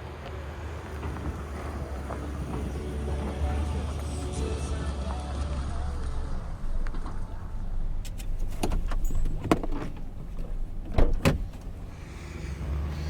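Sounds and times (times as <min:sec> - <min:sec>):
knocks and rattles over bumps: 0:00.0 - 0:04.4, 0:06.5 - 0:12.0
truck engine rumble: 0:00.0 - 0:13.0.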